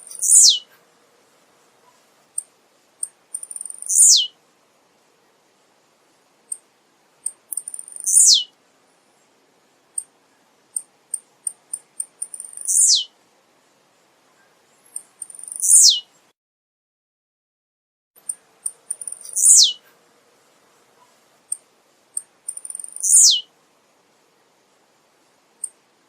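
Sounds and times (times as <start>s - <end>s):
buzzy descending bird song: 0.1s - 0.6s, 3.6s - 4.3s, 7.9s - 8.5s, 12.4s - 13.1s, 15.4s - 16.0s, 19.2s - 19.8s, 22.6s - 23.5s
high bird chip notes: 0.1s - 0.6s, 3.0s - 4.3s, 7.3s - 8.5s, 11.5s - 13.1s, 15.0s - 16.0s, 18.2s - 19.8s.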